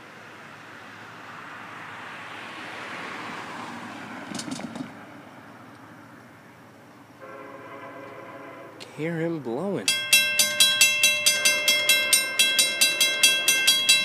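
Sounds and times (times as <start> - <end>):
car passing: 0.0 - 14.0.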